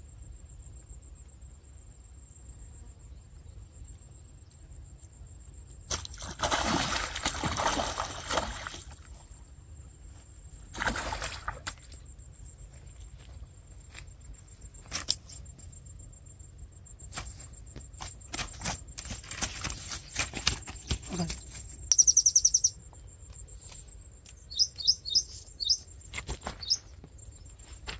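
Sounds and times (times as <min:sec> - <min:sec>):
water splashing and sloshing: 0:05.9 - 0:09.3, 0:10.7 - 0:12.1.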